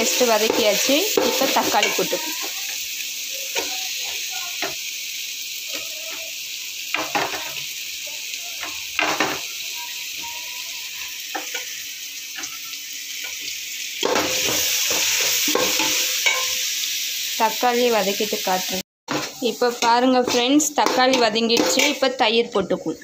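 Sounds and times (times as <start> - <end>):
tomatoes sizzling in hot oil: 0.0 - 23.0.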